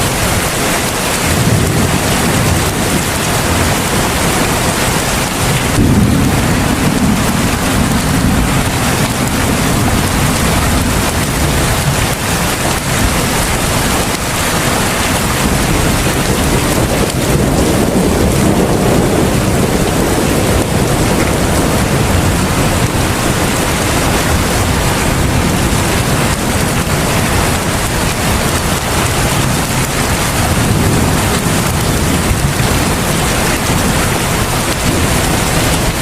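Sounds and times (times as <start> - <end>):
heavy rain hiss: 0.0 - 36.0
deep low rumble: 5.4 - 13.6.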